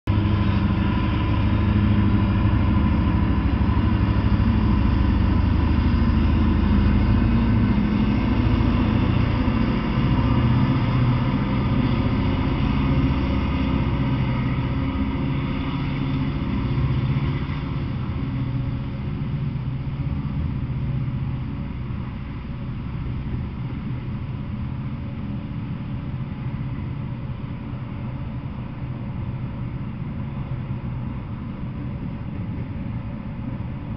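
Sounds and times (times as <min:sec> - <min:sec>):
diesel locomotives rumbling: 0:00.0 - 0:33.9
freight cars rolling by: 0:00.1 - 0:24.1.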